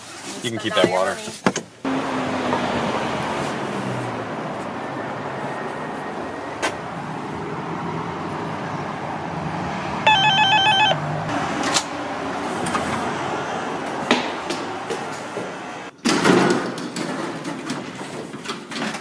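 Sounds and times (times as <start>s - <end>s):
car running noise: 9.9s - 11.9s
rapid trilling electronic beep: 10.1s - 11.0s.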